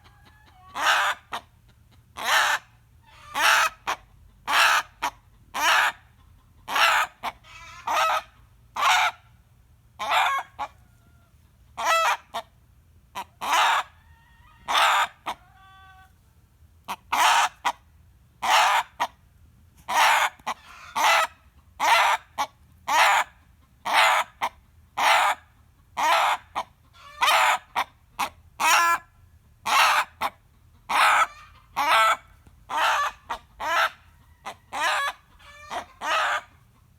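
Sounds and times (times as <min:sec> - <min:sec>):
faint tuneful rooster calls: 0:00.0 - 0:01.2, 0:10.0 - 0:12.2, 0:13.4 - 0:16.2, 0:30.9 - 0:36.6
rooster screaming: 0:31.0 - 0:36.5.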